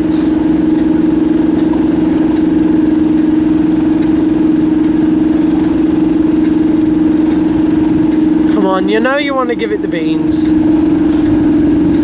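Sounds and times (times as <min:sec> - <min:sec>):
diesel locomotive engine drone: 0:00.0 - 0:12.0
person talking: 0:08.5 - 0:10.6.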